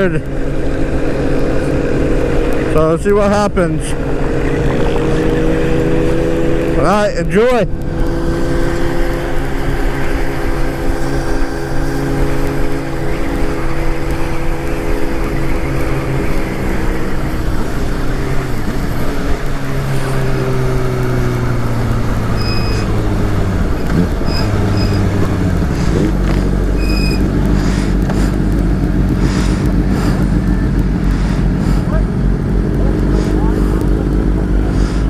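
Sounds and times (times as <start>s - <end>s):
motorcycle engine cruising: 0.0s - 35.0s
wind rush on microphone: 0.0s - 35.0s
short high beeps: 22.4s - 22.9s.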